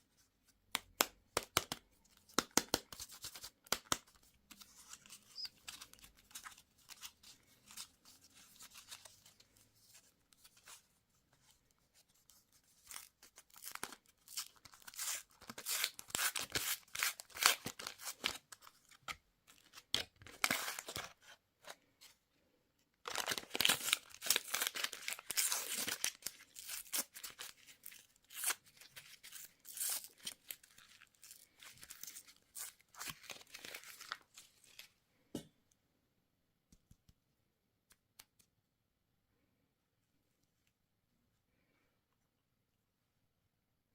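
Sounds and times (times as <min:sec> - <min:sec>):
candy wrapper tearing and crinkling: 0:12.8 - 0:21.2, 0:23.0 - 0:34.9.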